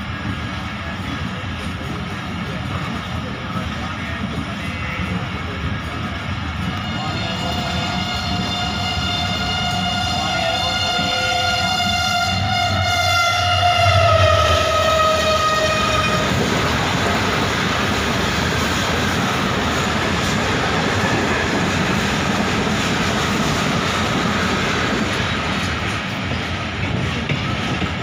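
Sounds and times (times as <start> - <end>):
train rumble and rail noise: 0.0 - 28.0
locomotive horn: 6.6 - 16.4.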